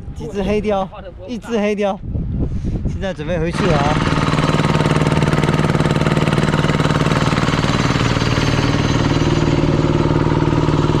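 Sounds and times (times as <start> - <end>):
engine chugging: 3.0 - 11.0.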